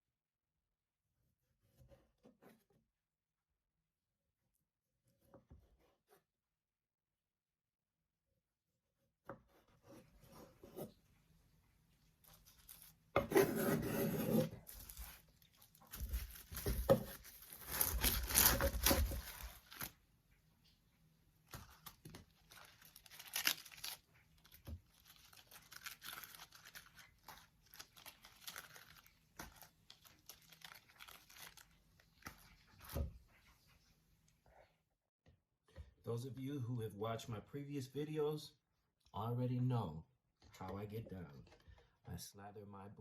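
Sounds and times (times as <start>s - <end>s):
hands rubbing and rustling food: 21.5s - 33.9s.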